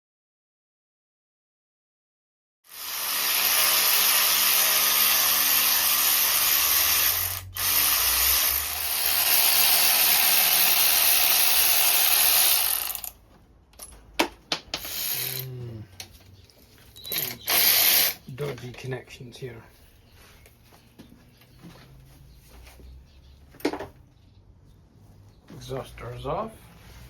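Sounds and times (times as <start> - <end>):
power tool running: 2.7 - 13.1, 14.8 - 15.4, 17.1 - 18.2.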